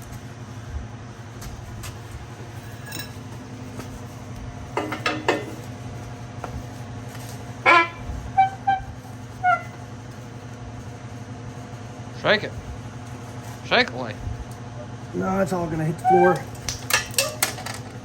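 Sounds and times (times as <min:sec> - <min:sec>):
metal clanks: 0:04.8 - 0:05.6.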